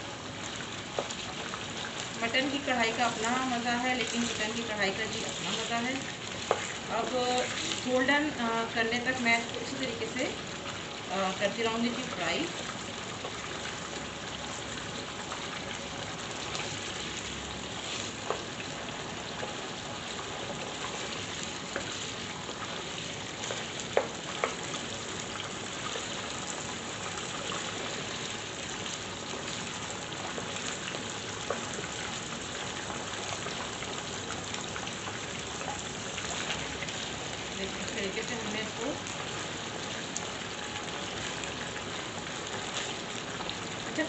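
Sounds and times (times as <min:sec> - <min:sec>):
chicken sizzling in hot oil: 0:00.0 - 0:44.0.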